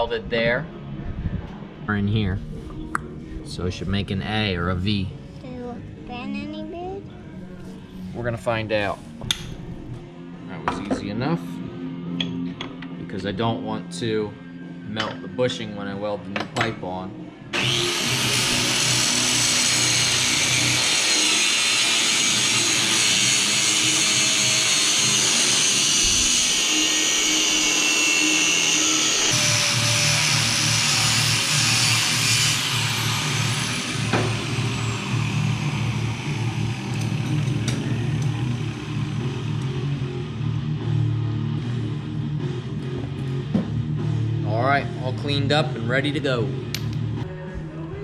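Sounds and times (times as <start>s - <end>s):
angle grinder grinding steel: 17.6s - 40.5s
rock music with low beat: 29.1s - 48.0s.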